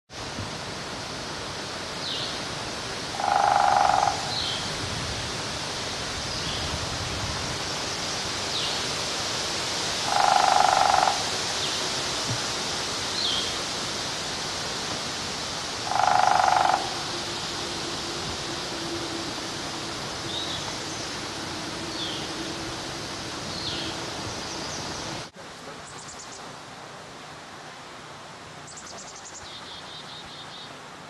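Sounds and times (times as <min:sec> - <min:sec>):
steady outdoor hiss: 0:00.1 - 0:31.0
woodpecker drumming roll: 0:03.2 - 0:04.4, 0:10.0 - 0:11.3, 0:15.8 - 0:17.9
woodpecker calls: 0:03.2 - 0:04.6, 0:10.1 - 0:11.3, 0:15.9 - 0:17.1.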